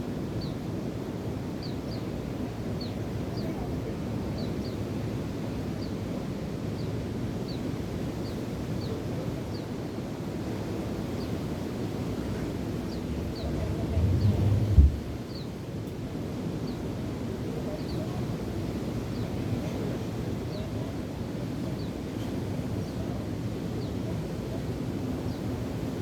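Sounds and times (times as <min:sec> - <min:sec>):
wind: 0:00.0 - 0:26.0
surf: 0:12.7 - 0:15.3.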